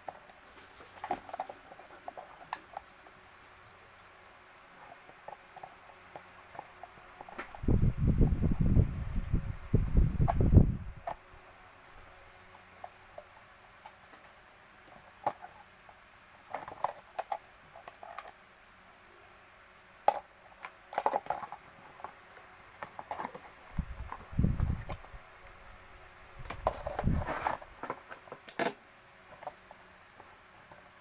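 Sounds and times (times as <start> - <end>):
small parts and tools clicking: 20.0 - 25.6.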